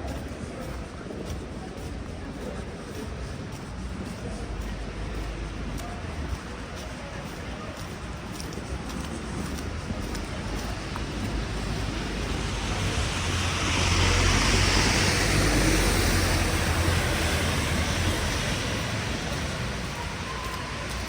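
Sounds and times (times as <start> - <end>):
vehicle engine hum: 0.0 - 21.0.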